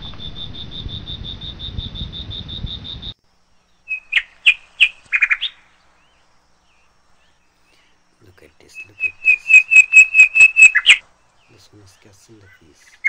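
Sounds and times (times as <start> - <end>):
bird sharp chirps and trill: 0.0 - 7.5, 8.6 - 13.0
hiss and low rumble: 0.0 - 9.6
rhythmic insect chirping: 0.0 - 13.0.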